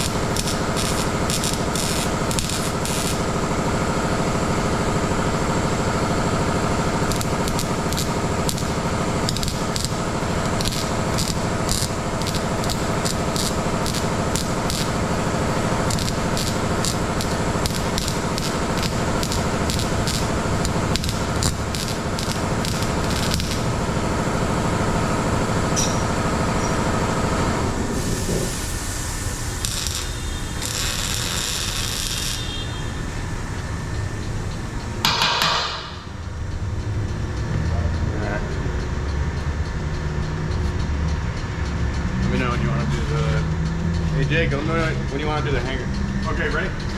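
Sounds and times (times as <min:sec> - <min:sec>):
sharp clicks and crackles: 0:00.0 - 0:03.4, 0:06.7 - 0:24.1, 0:29.6 - 0:32.5
hissing: 0:00.0 - 0:03.5, 0:06.7 - 0:24.1, 0:27.9 - 0:33.5
mechanical hum of shop equipment: 0:00.0 - 0:46.9.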